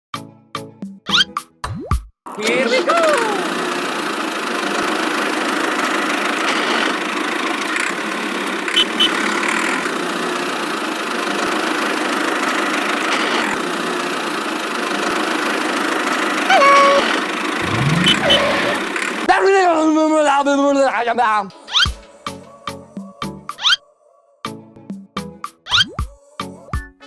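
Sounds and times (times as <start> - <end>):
small motor humming: 3.1 - 10.1, 16.6 - 19.2
high pitched gliding tones: 17.6 - 18.8.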